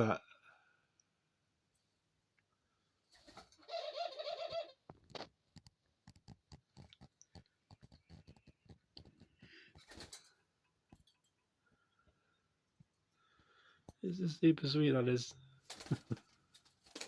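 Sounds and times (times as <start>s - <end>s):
dove cooing: 3.6s - 4.8s
soft irregular clicks: 4.9s - 12.9s.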